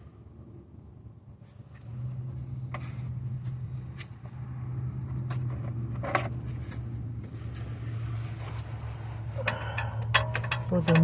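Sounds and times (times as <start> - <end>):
vehicle engine running: 0.0 - 11.0
tools clicking and clinking: 9.4 - 11.0.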